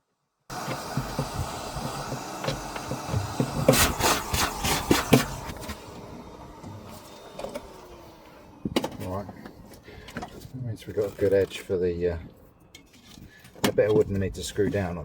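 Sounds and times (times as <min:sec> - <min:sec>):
carpet scraping and tearing: 0:00.8 - 0:05.9.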